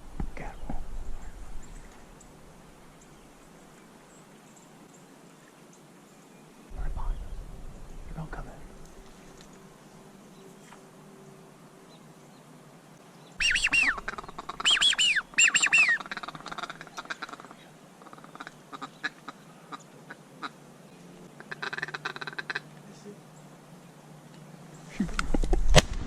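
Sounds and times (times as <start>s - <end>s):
duck quacking: 13.4s - 19.4s.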